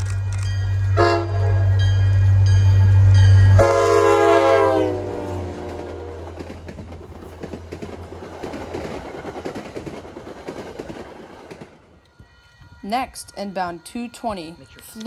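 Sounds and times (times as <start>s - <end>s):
locomotive horn blast: 0.8s - 6.4s
train wheels clicking over rail joints: 5.4s - 12.3s.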